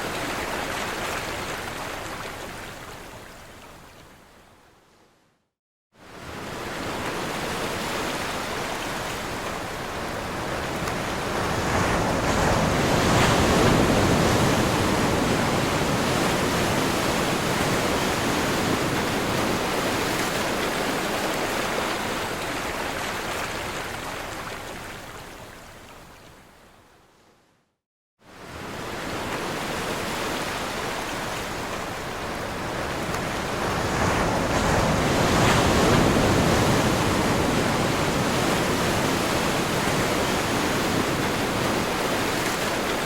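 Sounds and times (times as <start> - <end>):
waves breaking: 28.4 - 43.0.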